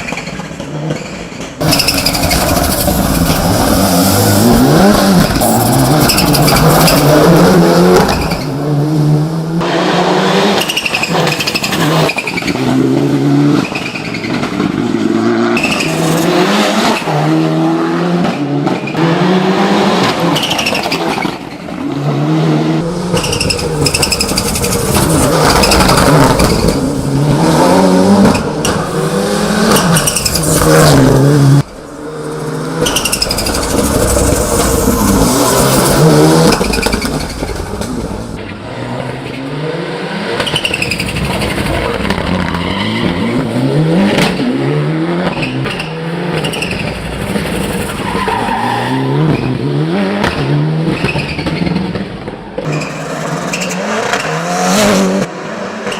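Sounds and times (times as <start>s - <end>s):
turbocharged car engine revving: 1.6s - 13.8s, 14.5s - 55.9s.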